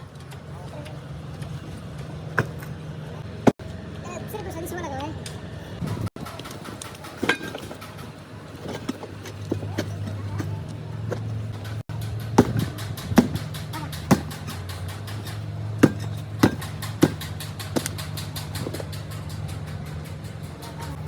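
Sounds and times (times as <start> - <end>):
low mechanical hum: 0.0 - 21.0
sharp ringing knocks: 11.6 - 21.0.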